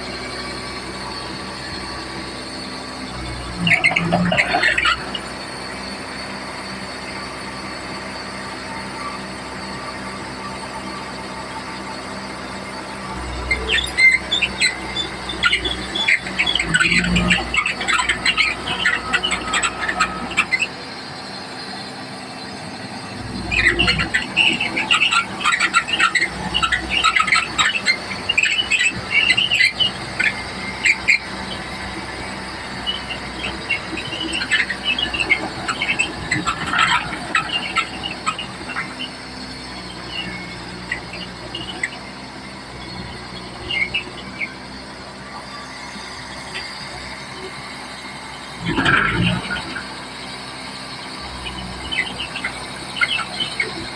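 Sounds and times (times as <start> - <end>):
bulldozer engine running: 0.0 - 53.9
metallic squealing of tracks: 0.0 - 53.9.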